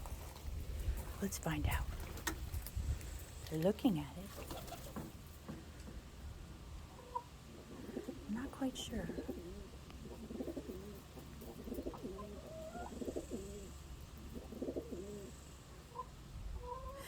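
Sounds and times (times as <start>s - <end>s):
pigeons cooing: 4.3s - 5.2s, 6.9s - 17.0s.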